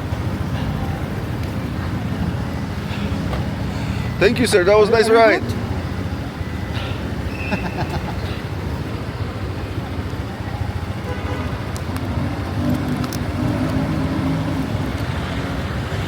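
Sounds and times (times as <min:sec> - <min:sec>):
vehicle engines running: 0:00.0 - 0:16.0.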